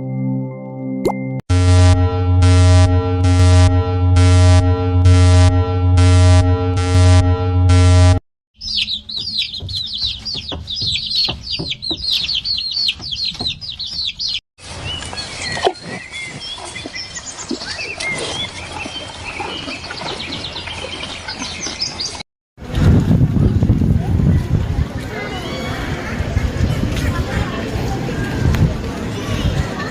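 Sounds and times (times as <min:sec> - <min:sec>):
chicks peeping: 0:08.6 - 0:14.4.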